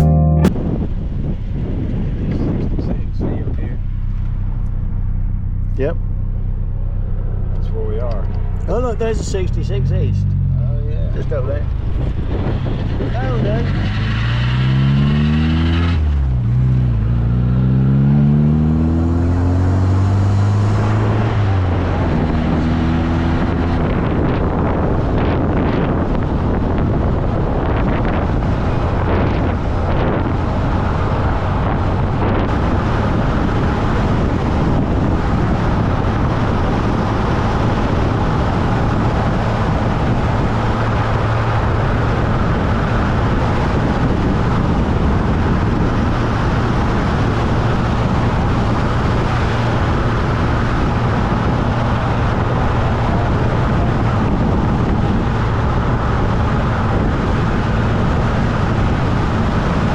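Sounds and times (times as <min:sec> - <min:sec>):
car engine drone: 0:00.0 - 0:59.9
tyre and wind noise: 0:07.6 - 0:59.9.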